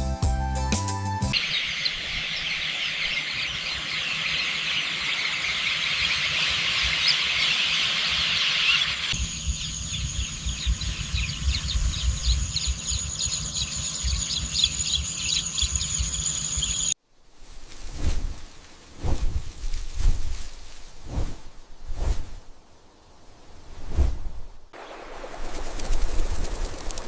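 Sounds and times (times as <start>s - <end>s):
birds chirping: 1.4s - 17.0s
steady high-pitched whine: 3.1s - 17.0s.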